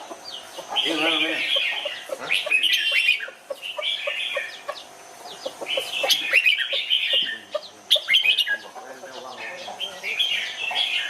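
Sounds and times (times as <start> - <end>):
bulbuls singing: 0.0 - 11.0.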